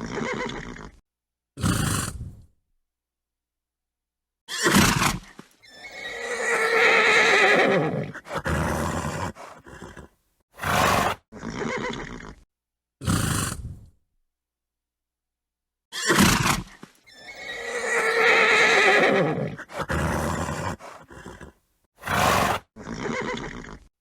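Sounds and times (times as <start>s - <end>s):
horse whinnying: 0.0s - 1.0s, 4.5s - 12.4s, 15.9s - 23.9s
horse snorting: 1.6s - 2.4s, 4.6s - 12.4s, 13.0s - 13.9s, 16.0s - 23.9s.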